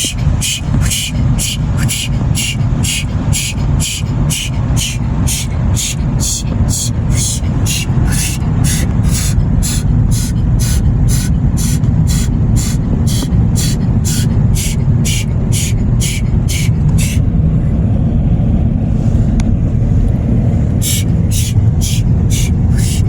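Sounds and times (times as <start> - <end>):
rhythmic pulsing hiss: 0.0 - 17.2, 20.3 - 23.0
car wash machinery rumble: 0.0 - 23.0.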